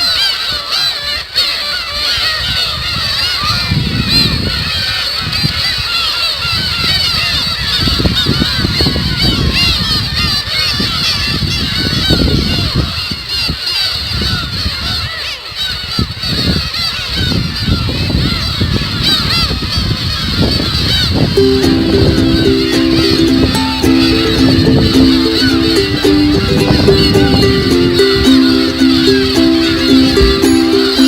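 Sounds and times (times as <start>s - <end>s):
gulls calling: 20.9s - 31.0s.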